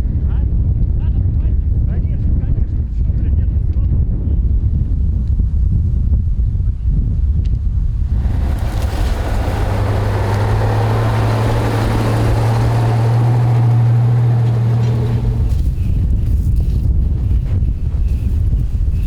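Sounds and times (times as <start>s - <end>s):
wind buffeting microphone: 0.0s - 19.0s
vehicle engine humming: 8.0s - 18.3s.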